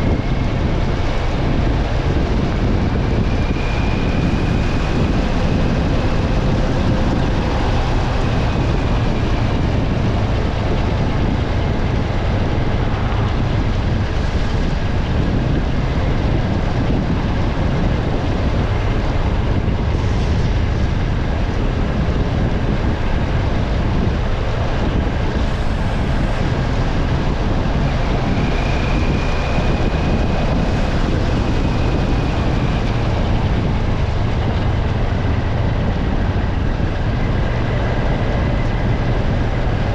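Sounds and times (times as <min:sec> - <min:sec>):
low road rumble: 0:00.0 - 0:39.9
tyres on wet road: 0:00.0 - 0:39.9.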